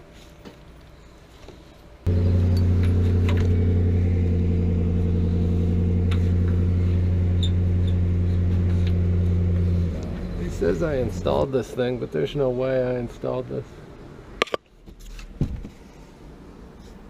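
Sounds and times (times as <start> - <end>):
engine humming: 2.1 - 13.1.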